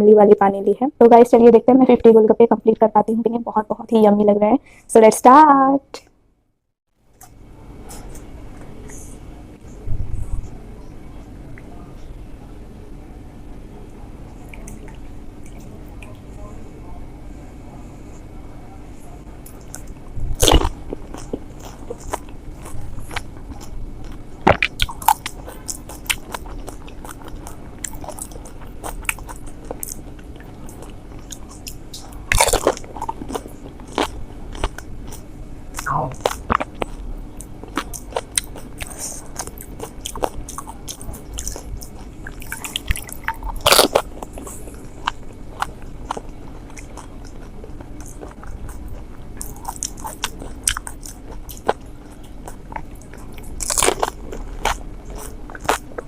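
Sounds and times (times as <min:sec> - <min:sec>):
crunchy chewing: 0:19.4 - 0:56.0
loud crunches biting: 0:31.3 - 0:35.2, 0:42.4 - 0:48.8, 0:52.5 - 0:56.0.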